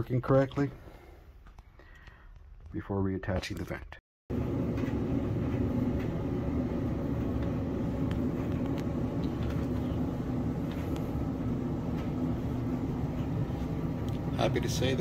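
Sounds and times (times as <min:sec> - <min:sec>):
clothes dryer running: 0:04.3 - 0:15.0.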